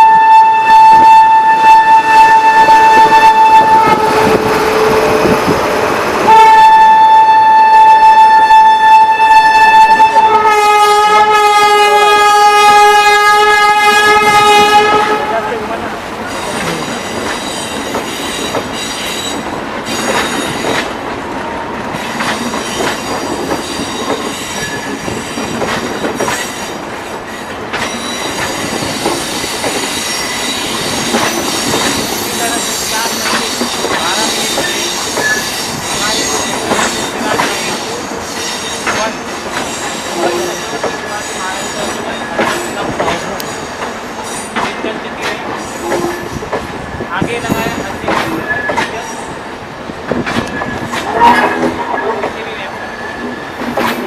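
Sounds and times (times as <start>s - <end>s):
train wheels rumbling: 0.0s - 54.0s
clacks over rail joints: 15.8s - 49.2s, 49.9s - 54.0s
high wheel squeal: 16.2s - 20.9s, 22.0s - 44.6s, 45.5s - 47.0s, 50.5s - 54.0s.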